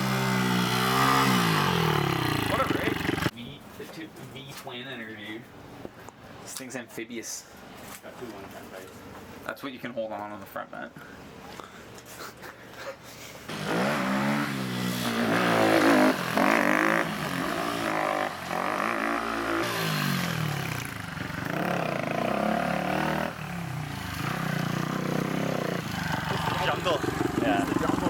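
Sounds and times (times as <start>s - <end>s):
vehicle engine revving: 0.0s - 3.3s, 13.5s - 28.0s.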